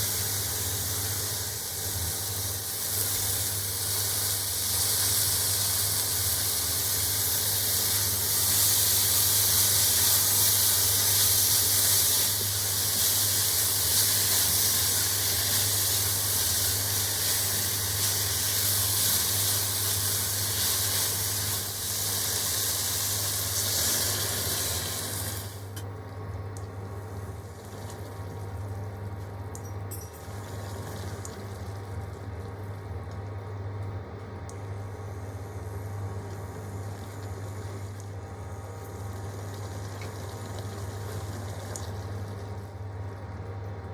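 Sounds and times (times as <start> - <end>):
vegetables sizzling in a pan: 0.0 - 25.8.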